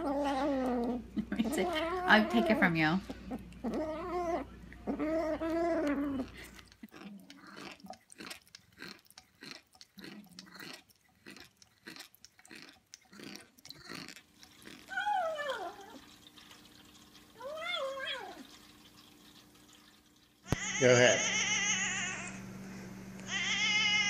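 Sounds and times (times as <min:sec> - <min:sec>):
cat chewing with crunching: 0:00.0 - 0:17.4
cat yowling: 0:20.5 - 0:22.4, 0:23.3 - 0:24.0.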